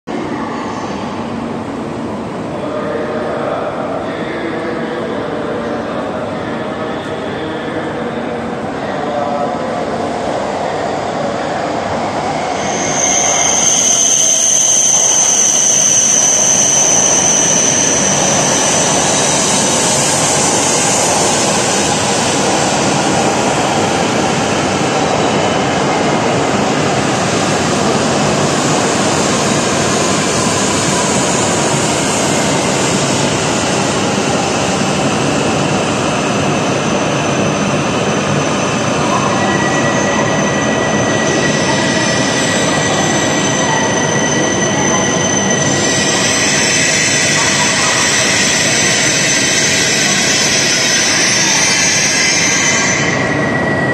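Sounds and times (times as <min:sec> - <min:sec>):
train rushing noise: 0:00.1 - 0:53.9.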